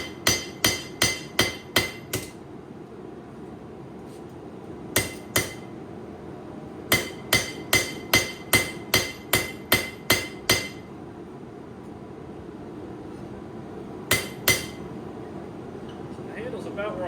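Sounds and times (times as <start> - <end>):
hammer ringing on anvil: 0.0 - 2.4, 5.0 - 5.7, 6.9 - 10.8, 14.1 - 14.9.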